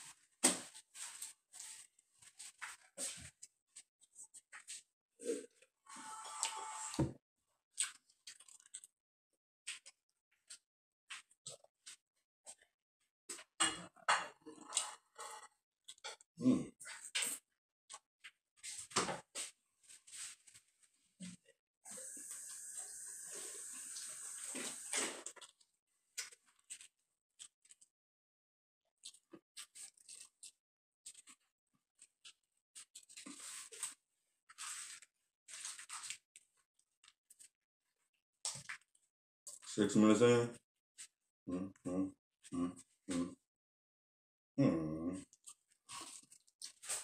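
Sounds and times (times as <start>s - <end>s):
chewing and lip smacking: 7.8s - 8.9s
crisp crunching and chewing: 7.8s - 8.9s, 29.0s - 31.4s, 45.4s - 47.0s.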